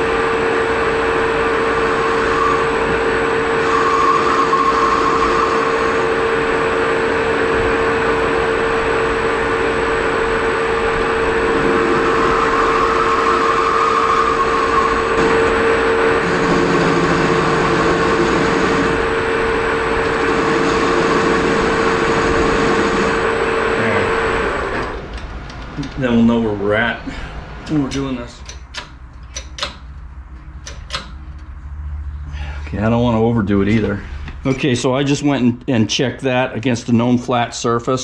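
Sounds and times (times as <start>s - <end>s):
metal cutting noise: 0.0s - 8.0s, 10.1s - 25.1s
lathe motor hum: 0.0s - 26.2s
constant whine: 0.0s - 38.0s.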